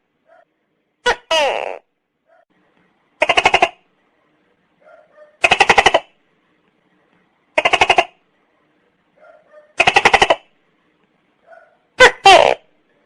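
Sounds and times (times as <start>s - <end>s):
gecko croaking: 3.2s - 3.8s, 5.4s - 6.2s, 7.6s - 8.2s.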